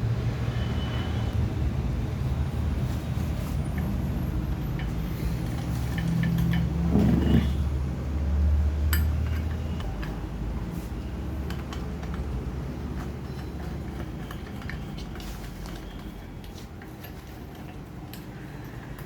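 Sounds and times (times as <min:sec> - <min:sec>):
metallic clicks and clinks: 0:03.7 - 0:07.6, 0:08.8 - 0:10.3, 0:11.3 - 0:19.0.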